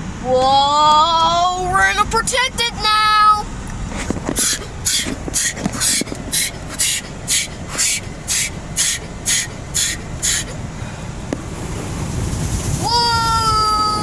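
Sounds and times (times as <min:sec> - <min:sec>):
low rumble of machinery: 0:00.0 - 0:14.0
car wash spray hissing: 0:01.2 - 0:14.0.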